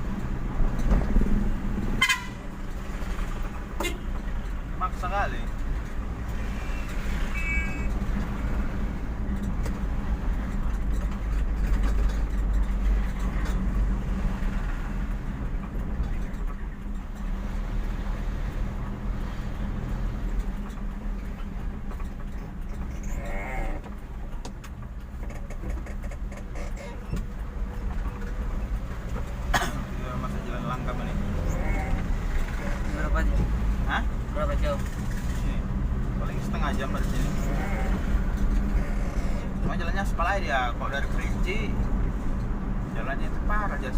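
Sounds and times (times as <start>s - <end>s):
vehicle engine and road noise: 0.0s - 43.9s.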